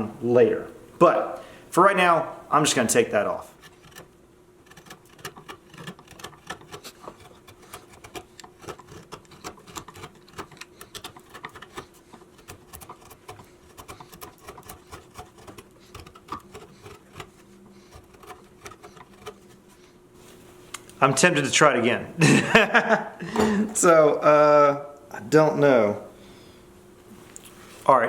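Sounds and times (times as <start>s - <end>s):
faint steady hum: 0.0s - 28.0s
hand tool cutting wood: 3.5s - 19.6s.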